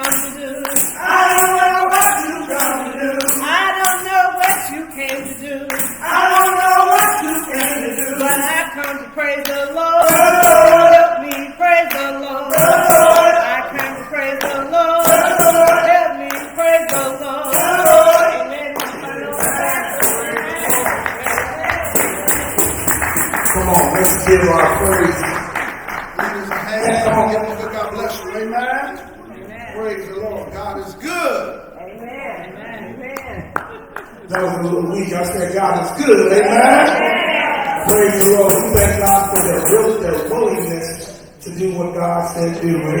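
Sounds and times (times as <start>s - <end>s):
tambourine shaken: 0.0s - 26.2s, 37.8s - 41.4s
voices singing gospel song: 0.0s - 29.2s, 32.5s - 43.0s.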